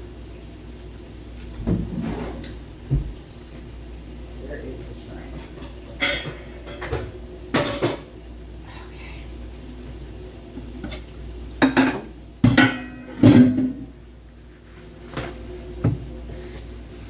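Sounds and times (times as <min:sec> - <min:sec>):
metal pots and pans clanking: 0:05.4 - 0:08.1, 0:10.8 - 0:13.8.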